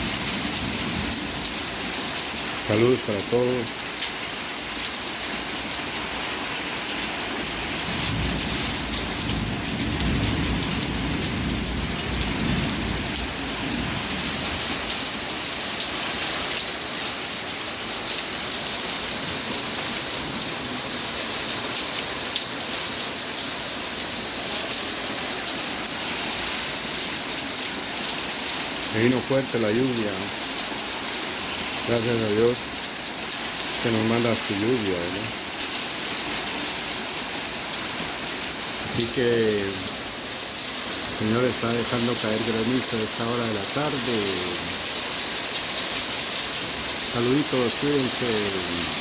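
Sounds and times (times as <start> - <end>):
heavy rain pouring: 0.0 - 49.0
thunder rumbling: 7.8 - 14.6.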